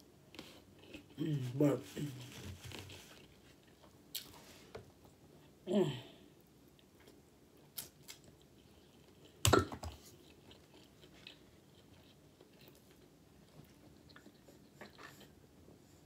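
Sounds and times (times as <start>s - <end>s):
person chewing: 6.8s - 15.5s.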